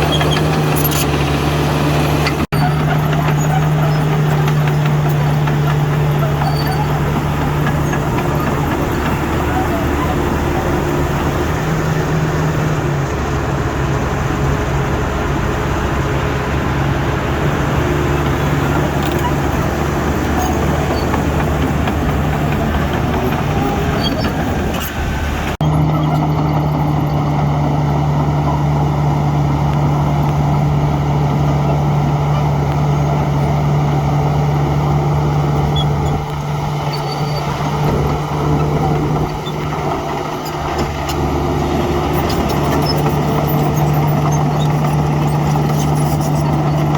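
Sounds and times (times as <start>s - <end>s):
diesel machinery engine running: 0.0s - 46.9s.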